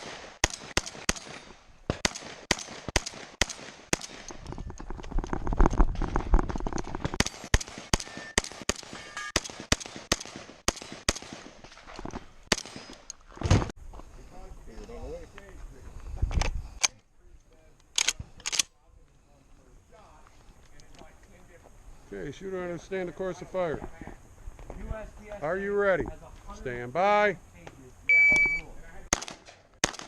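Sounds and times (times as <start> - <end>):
shotgun shots: 0.0 - 4.3, 7.2 - 11.8, 12.5 - 13.0, 29.1 - 30.0.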